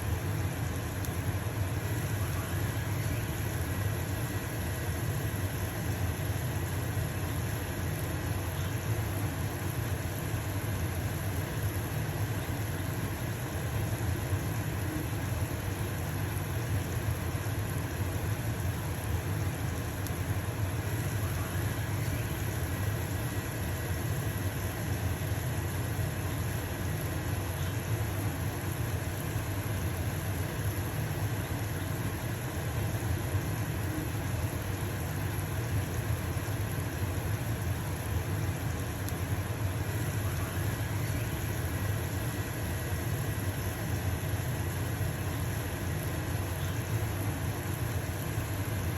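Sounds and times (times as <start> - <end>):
batter sizzling in a pan: 0.0 - 48.9
range hood fan humming: 0.0 - 48.9.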